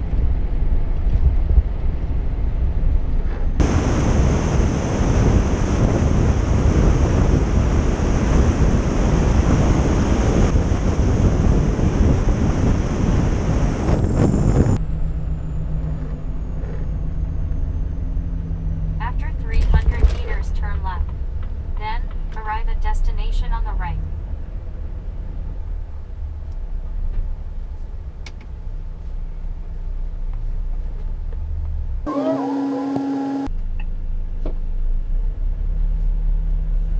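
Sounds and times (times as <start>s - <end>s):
wind buffeting microphone: 0.0s - 14.8s
truck engine rumble inside cab: 0.0s - 36.9s
brief gliding sounds: 32.1s - 33.5s
lorry road noise: 32.1s - 33.5s
steady humming tone: 32.1s - 33.5s.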